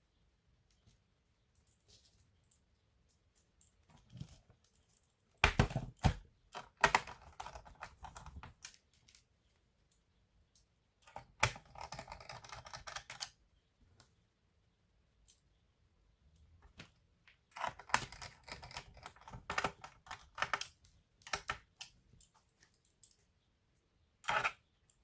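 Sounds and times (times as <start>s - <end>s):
laptop plastic clicks and rattling: 3.6s - 9.3s, 11.0s - 13.4s, 16.7s - 23.2s, 24.2s - 25.0s.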